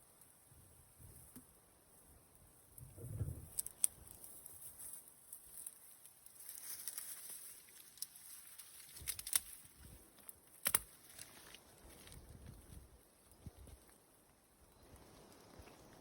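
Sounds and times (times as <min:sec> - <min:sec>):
sharp clicks: 0:10.6 - 0:10.9.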